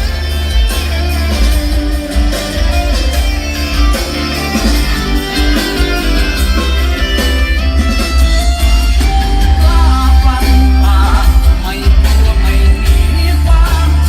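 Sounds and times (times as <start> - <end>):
guitar song through car speakers: 0.0 - 14.0
heavy bass line: 0.0 - 14.0.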